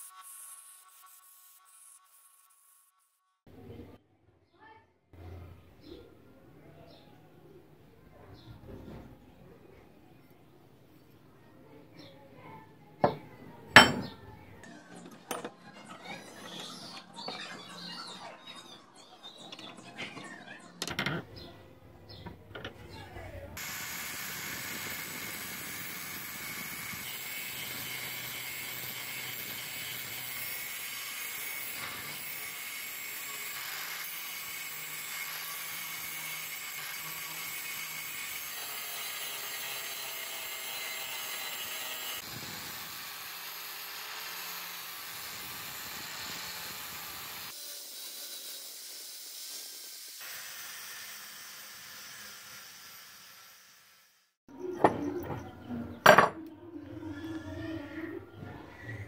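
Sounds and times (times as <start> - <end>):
hiss of sparks: 0.0 - 2.9, 23.6 - 54.4
angle grinder grinding steel: 13.8 - 14.2, 23.6 - 54.1.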